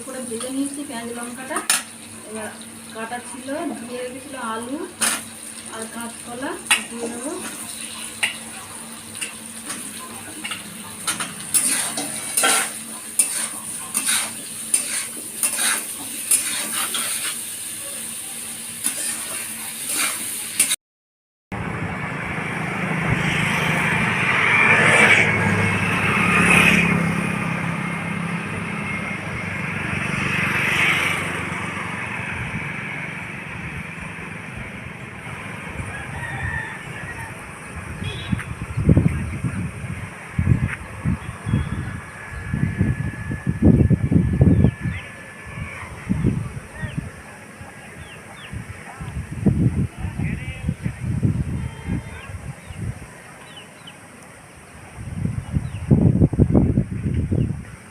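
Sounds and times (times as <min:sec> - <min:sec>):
food sizzling in oil: 0:00.0 - 0:20.8
rooster crowing: 0:35.5 - 0:38.2.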